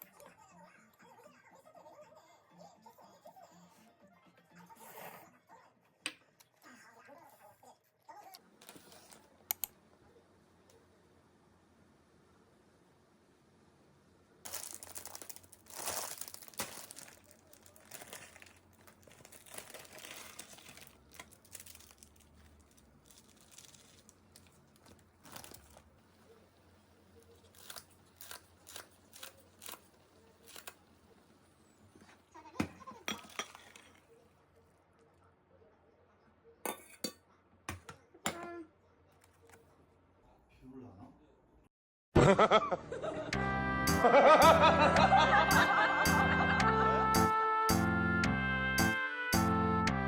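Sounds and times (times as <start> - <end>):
packaging rustling and crinkling: 8.6 - 9.3, 14.5 - 30.8.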